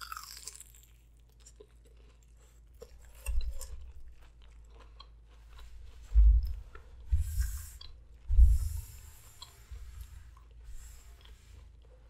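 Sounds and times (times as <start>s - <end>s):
chewing crunchy food: 0.0s - 8.3s, 9.2s - 12.0s
dull low thump: 6.1s - 7.6s, 8.2s - 9.1s.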